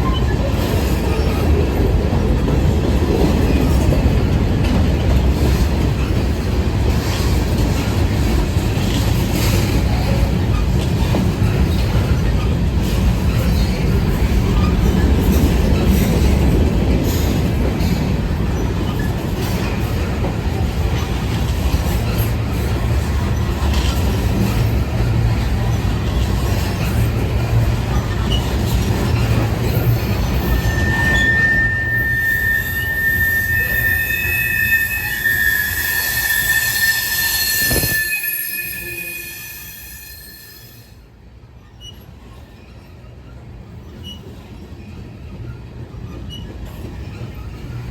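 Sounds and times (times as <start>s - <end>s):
train rumbling on rails: 0.0s - 47.9s
high-pitched wheel squeal: 30.1s - 40.9s.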